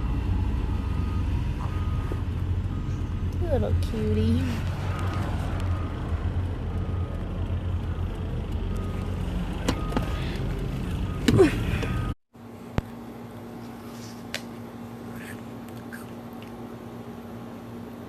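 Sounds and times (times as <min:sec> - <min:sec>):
road rumble inside car: 0:00.0 - 0:12.2.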